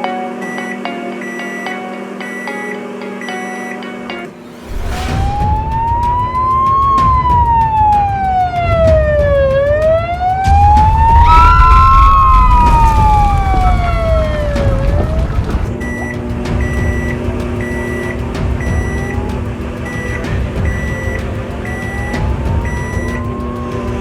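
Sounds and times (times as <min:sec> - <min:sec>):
siren wailing: 0:00.0 - 0:24.0
low rumble: 0:04.4 - 0:21.1.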